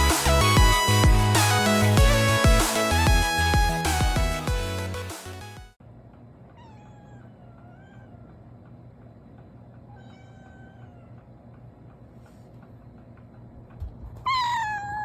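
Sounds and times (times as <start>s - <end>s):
music: 0.0s - 5.8s
cat meowing: 6.6s - 8.4s, 9.9s - 11.2s, 14.3s - 15.0s.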